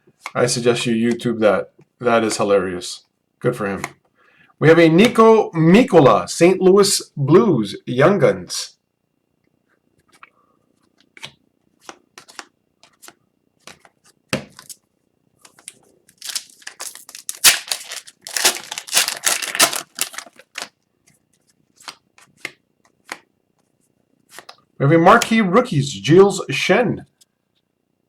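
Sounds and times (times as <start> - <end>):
foil pack tearing and crinkling: 16.2 - 20.7.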